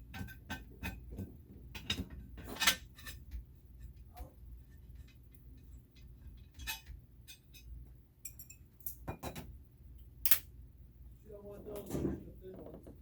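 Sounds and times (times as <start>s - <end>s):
hard objects clicking and tapping: 0.0s - 3.5s
low steady hum: 0.0s - 13.0s.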